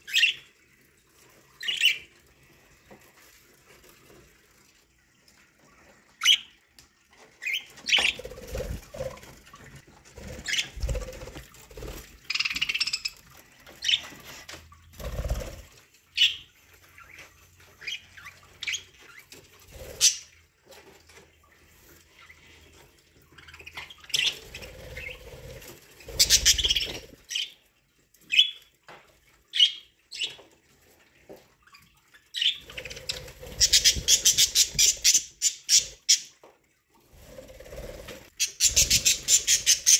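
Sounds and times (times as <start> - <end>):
budgerigars chirping and squawking: 26.1 - 27.6, 31.7 - 36.3, 38.4 - 39.9.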